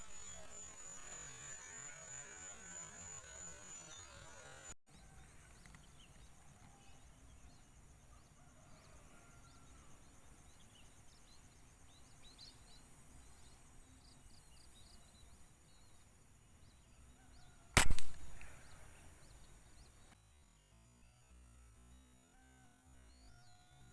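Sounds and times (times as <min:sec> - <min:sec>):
air rifle shot: 0:17.8 - 0:18.8.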